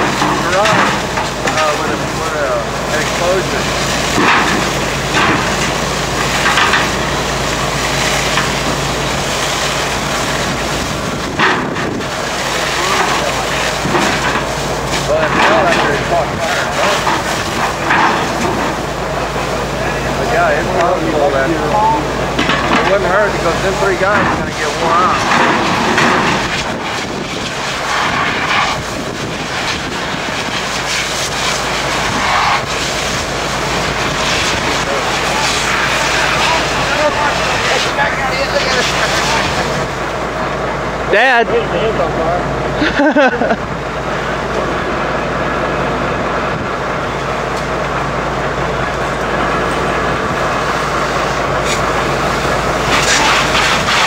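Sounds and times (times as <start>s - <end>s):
constant rushing noise: 0.0s - 54.0s
large engine humming: 0.0s - 54.0s.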